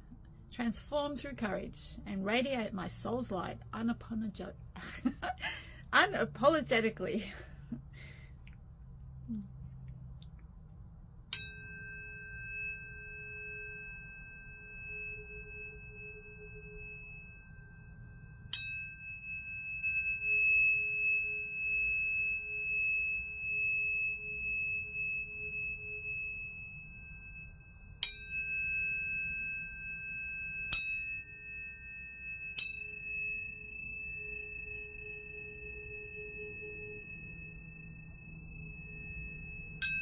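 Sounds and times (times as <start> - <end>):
faint low hum: 0.0 - 30.7, 31.5 - 40.0
tuning fork steady tone: 10.7 - 40.0
tuning fork metallic ping: 11.3 - 40.0.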